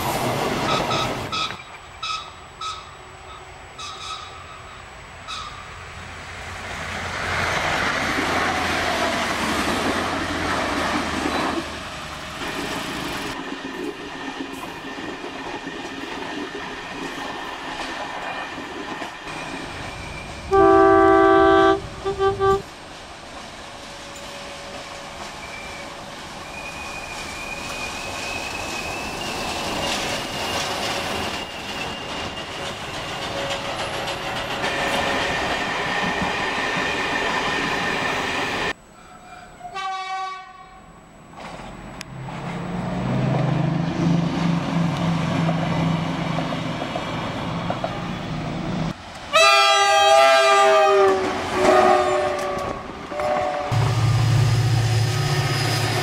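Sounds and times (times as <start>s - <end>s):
trains running on rails: 0.0s - 56.0s
train horn blasts: 20.5s - 22.7s, 39.0s - 40.9s, 49.3s - 54.4s.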